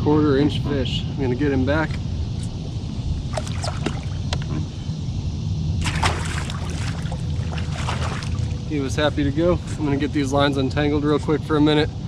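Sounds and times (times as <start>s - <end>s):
steady low rumble: 1.1s - 12.0s
water sloshing and splashing: 3.3s - 4.5s, 5.8s - 8.7s
large splash: 5.8s - 8.7s.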